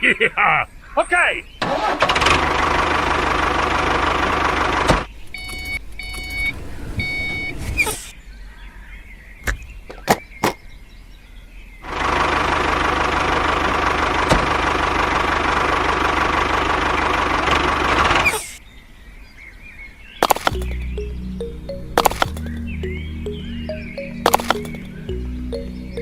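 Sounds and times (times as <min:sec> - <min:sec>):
sharp clicks: 0:20.2 - 0:20.8, 0:21.9 - 0:22.7, 0:24.0 - 0:25.0.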